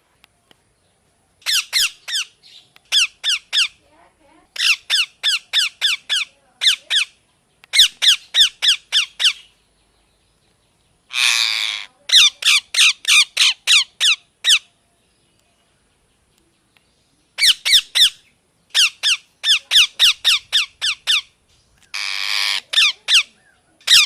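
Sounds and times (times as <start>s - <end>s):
parrot screeching: 1.4s - 2.3s, 4.6s - 7.1s, 11.1s - 14.6s, 21.9s - 23.3s
parrot squawking: 1.4s - 3.8s, 4.6s - 7.1s, 7.7s - 9.5s, 11.1s - 14.7s, 17.4s - 21.3s, 21.9s - 24.0s.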